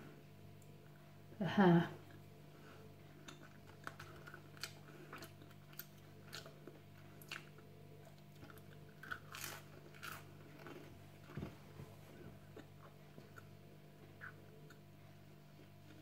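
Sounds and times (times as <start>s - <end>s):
faint steady hum: 0.0s - 16.0s
person chewing crunchy snack: 3.1s - 11.4s.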